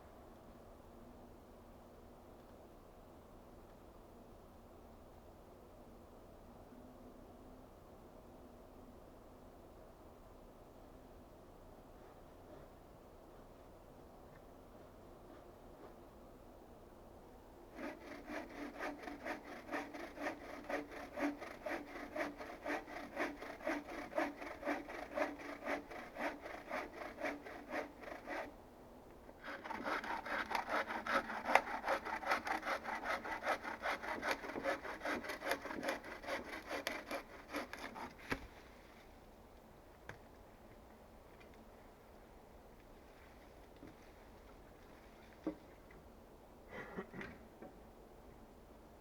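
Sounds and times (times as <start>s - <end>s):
hand saw cutting wood: 17.7s - 28.5s, 29.4s - 38.4s.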